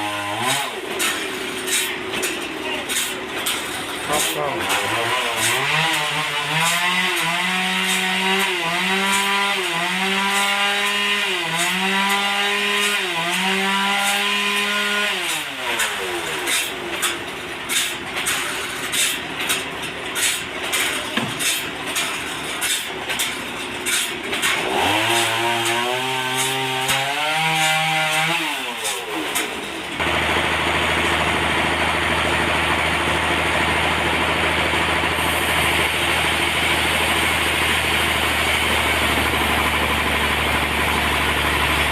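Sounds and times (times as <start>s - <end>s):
sawmill machinery engine: 0.0s - 41.9s
irregular knocking and clatter: 16.9s - 24.6s
steady engine drone: 29.3s - 41.9s.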